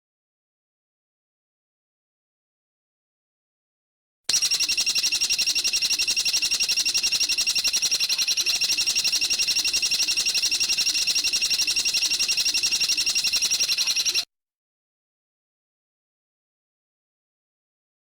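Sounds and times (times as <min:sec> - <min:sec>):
songbird rapid trill: 0:04.3 - 0:14.3.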